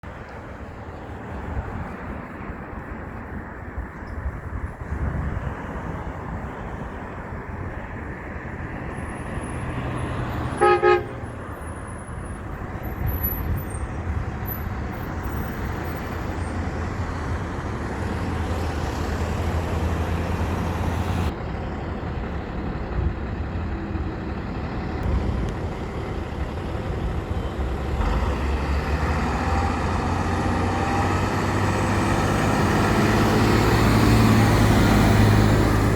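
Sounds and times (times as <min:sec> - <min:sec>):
heavy truck engines passing: 0:00.0 - 0:35.9
short horn toot: 0:10.6 - 0:11.2.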